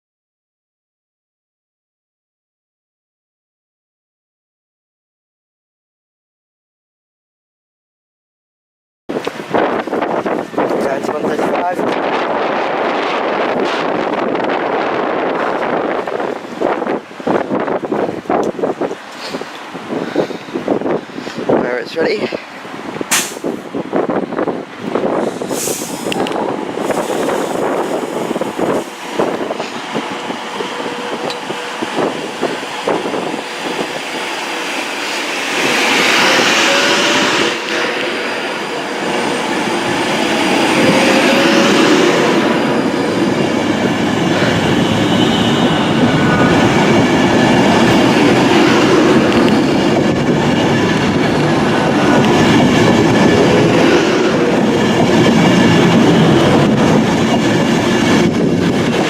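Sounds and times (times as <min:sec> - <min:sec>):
heavy train rumble: 0:09.1 - 0:59.0
high squeals: 0:42.4 - 0:50.2.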